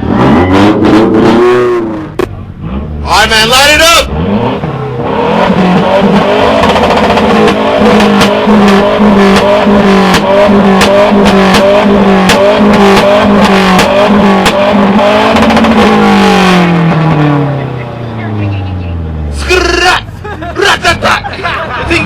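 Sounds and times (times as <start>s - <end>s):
car engine revving high: 0.0s - 22.0s
exhaust cracking and popping: 6.0s - 17.2s.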